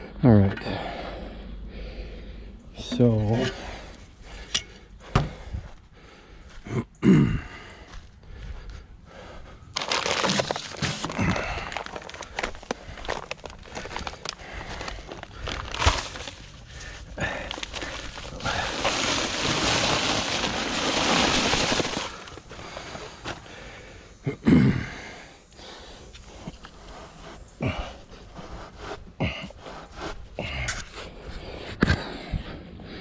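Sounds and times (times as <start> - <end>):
loose dirt sliding: 9.8 - 23.8
shovel digging in soil: 15.1 - 23.4.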